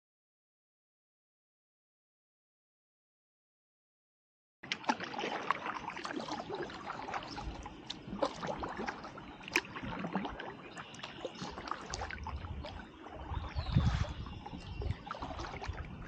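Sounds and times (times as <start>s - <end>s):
paddle splashing water: 4.6s - 16.0s.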